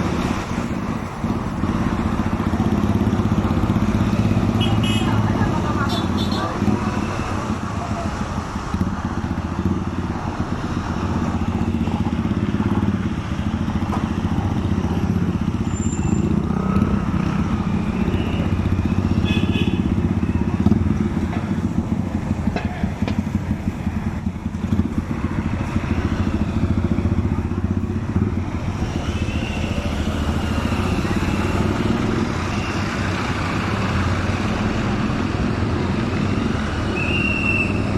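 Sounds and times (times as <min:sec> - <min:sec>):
road and wind noise: 0:00.0 - 0:37.9
motorcycle engine running: 0:07.5 - 0:36.9.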